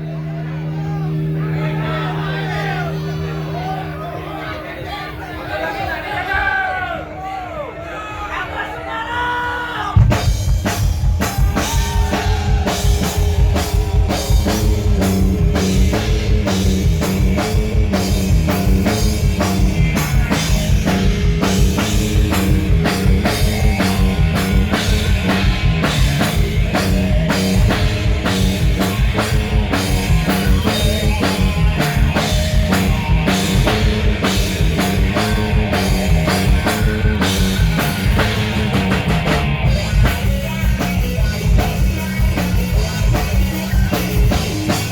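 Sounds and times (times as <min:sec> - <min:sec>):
bass line: 0:00.0 - 0:06.1, 0:10.0 - 0:44.9
electric guitar: 0:00.0 - 0:06.5, 0:10.0 - 0:44.9
drum kit pounding a beat: 0:10.0 - 0:44.9.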